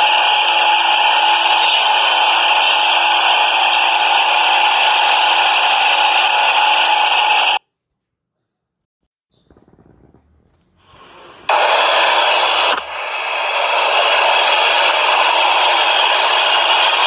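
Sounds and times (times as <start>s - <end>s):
subway train running: 0.0s - 7.6s, 11.5s - 17.0s.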